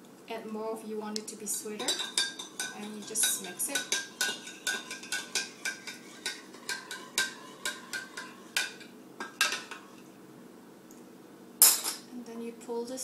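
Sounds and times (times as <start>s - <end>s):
spoon clinking against cup: 1.8s - 9.9s.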